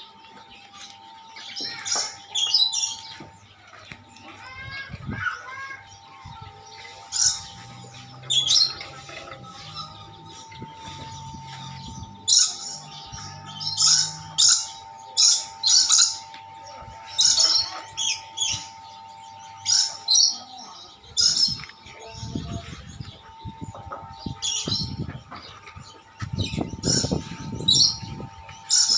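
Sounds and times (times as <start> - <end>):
soft bird chattering: 0.0 - 28.9.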